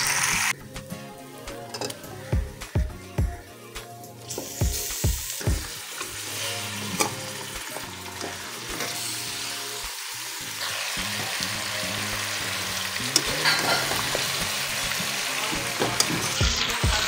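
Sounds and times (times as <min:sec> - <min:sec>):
chicken sizzling in hot oil: 0:00.0 - 0:00.6, 0:04.2 - 0:17.0.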